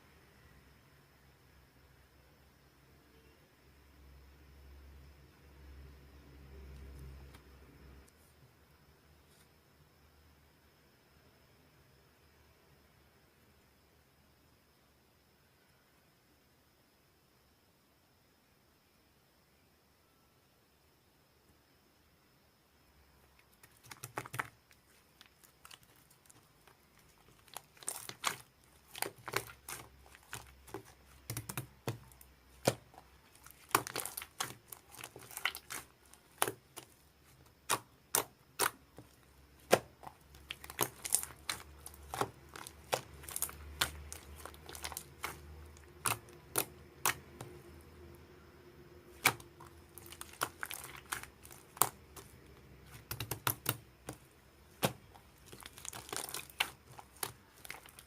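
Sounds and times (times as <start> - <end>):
slime being squished: 23.3 - 48.0, 49.0 - 58.0.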